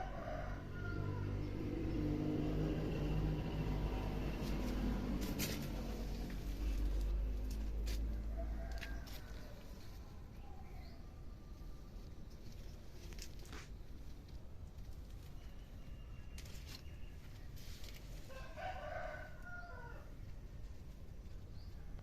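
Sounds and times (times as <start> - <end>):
rooster crowing: 0.0 - 1.5, 8.1 - 9.7, 18.3 - 20.1.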